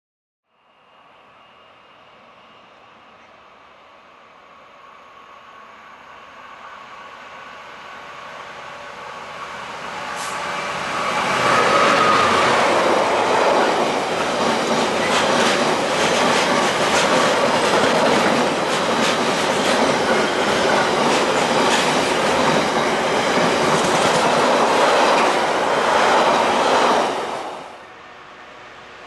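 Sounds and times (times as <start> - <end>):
train rumble: 2.7 - 29.0
train wheels clicking on rails: 7.7 - 27.6.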